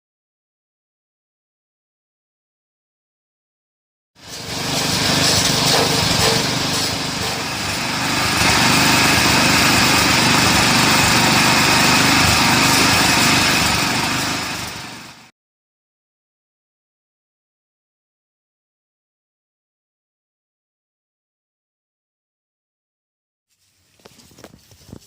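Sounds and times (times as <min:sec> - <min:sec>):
petrol engine running chopping machine: 0:04.2 - 0:15.3.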